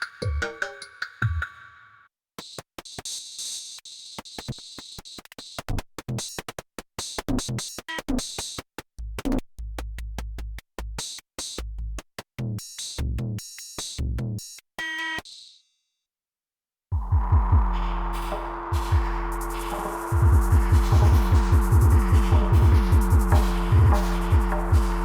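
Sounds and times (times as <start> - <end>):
kick drum hits: 17.0 - 17.8, 20.1 - 25.0
hi-hat ticks: 17.2 - 25.0.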